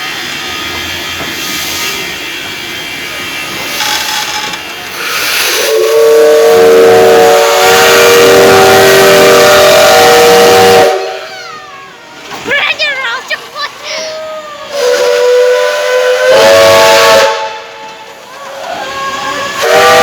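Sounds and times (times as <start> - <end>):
steam locomotive hissing: 0.0 - 20.0
steam whistle blast: 4.9 - 11.3, 14.7 - 17.9, 19.2 - 20.0.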